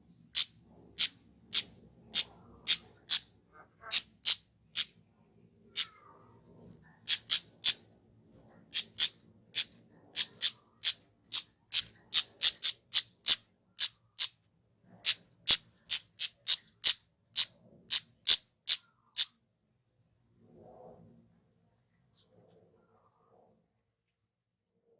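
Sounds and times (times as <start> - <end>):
bird ticking call notes: 0.4 - 3.2, 3.9 - 4.9, 7.1 - 7.8, 8.8 - 14.4, 15.1 - 19.3.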